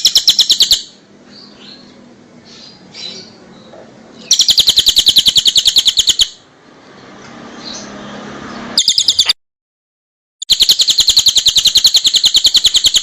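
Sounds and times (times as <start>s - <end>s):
songbird trilling: 0.0s - 6.4s, 8.8s - 9.4s, 10.4s - 13.0s
soft bird chirps: 7.6s - 9.4s, 10.4s - 13.0s.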